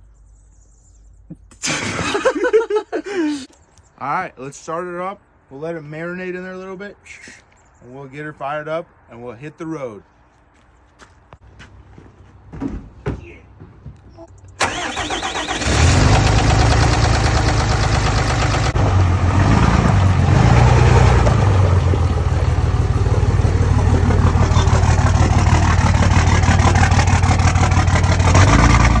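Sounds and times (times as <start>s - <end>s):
diesel engine starting and running: 14.4s - 29.0s.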